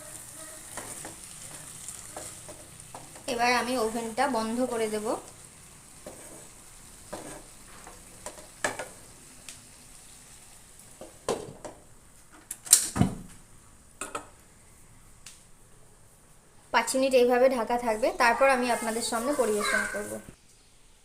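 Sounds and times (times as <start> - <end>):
curry sizzling in a pan: 0.0 - 11.9, 17.5 - 20.4.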